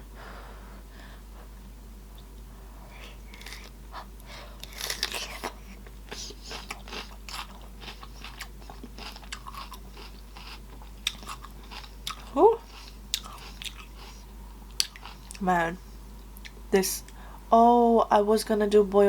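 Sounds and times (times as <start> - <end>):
wet chewing and smacking: 3.3 - 15.4.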